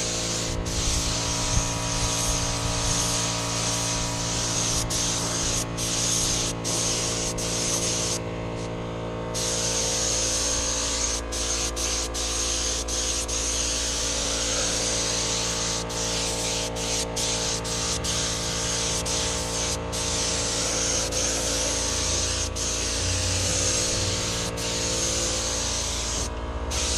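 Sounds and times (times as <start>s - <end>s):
spray gun hissing: 0.0s - 8.7s, 9.4s - 26.9s.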